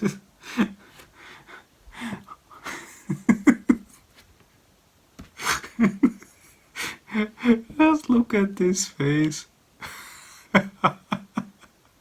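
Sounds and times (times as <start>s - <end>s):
man chuckling through his nose: 0.0s - 4.0s, 5.4s - 7.5s.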